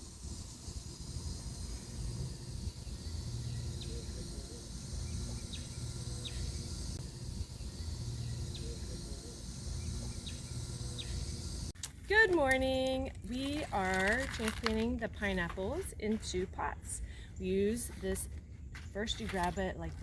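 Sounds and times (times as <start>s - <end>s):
high insect hiss: 0.0s - 11.8s
steady low rumble: 0.0s - 20.0s.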